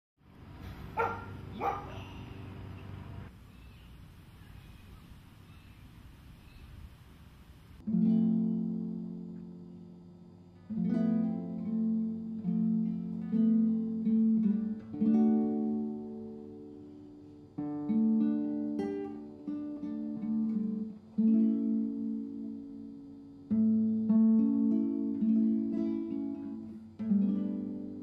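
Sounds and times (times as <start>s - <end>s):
acoustic guitar strumming: 7.8s - 28.0s.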